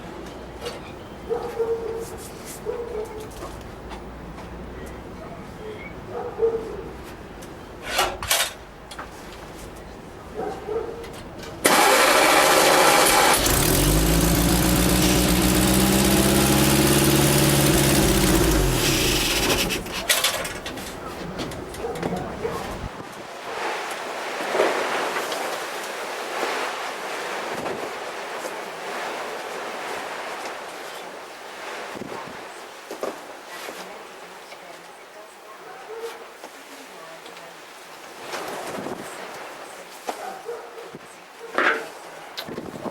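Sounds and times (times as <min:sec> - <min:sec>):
engine cranking on starter: 0:11.6 - 0:21.0.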